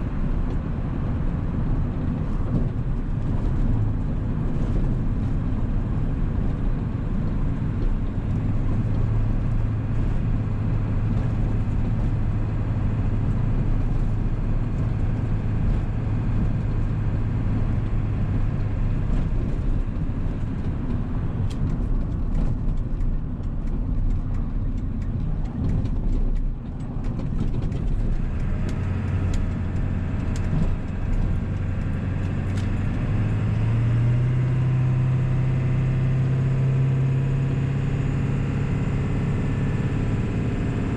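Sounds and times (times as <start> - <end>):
diesel truck engine drone: 0.0 - 40.9
road noise: 0.0 - 40.9.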